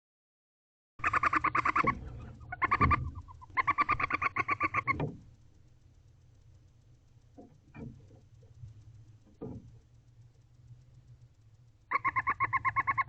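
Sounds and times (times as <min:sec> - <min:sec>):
barn owl calling: 0:01.0 - 0:05.2, 0:11.9 - 0:13.0
low steady hum: 0:01.0 - 0:13.0.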